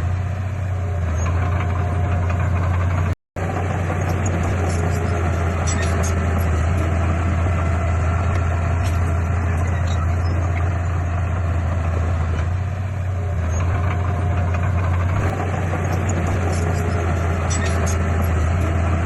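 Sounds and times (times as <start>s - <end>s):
heavy diesel engine droning: 0.0s - 19.0s.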